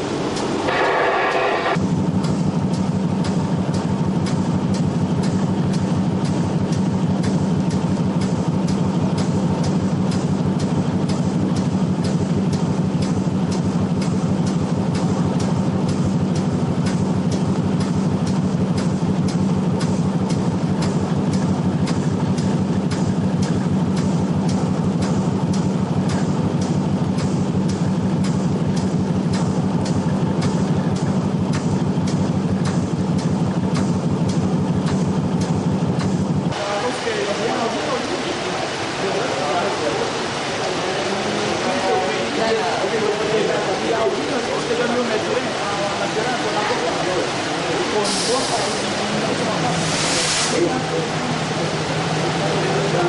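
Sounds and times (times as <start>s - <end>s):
train engine drone: 0.0s - 53.0s
fast regular ticking: 1.7s - 36.6s.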